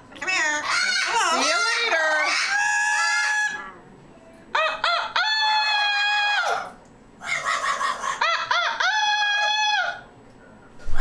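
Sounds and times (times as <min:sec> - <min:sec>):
rooster crowing: 0:02.3 - 0:03.6, 0:04.5 - 0:10.1.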